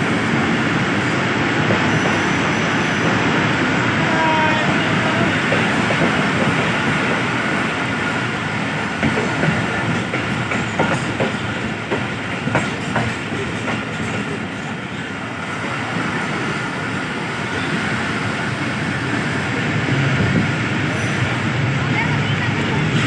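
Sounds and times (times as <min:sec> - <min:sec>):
train rumbling on track: 0:00.0 - 0:23.0
train wheels clicking over rail joints: 0:05.4 - 0:14.8.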